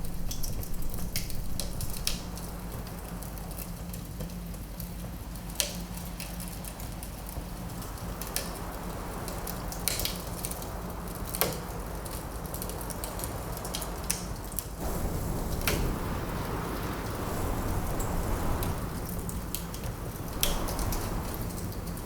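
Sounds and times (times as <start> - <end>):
low rush of wind: 0.0 - 4.0, 14.8 - 22.0
logs crackling and popping: 0.0 - 22.0.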